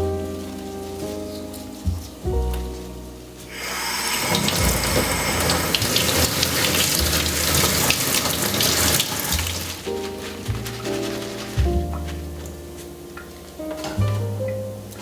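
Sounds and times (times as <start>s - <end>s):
water running from tap: 3.5s - 12.0s.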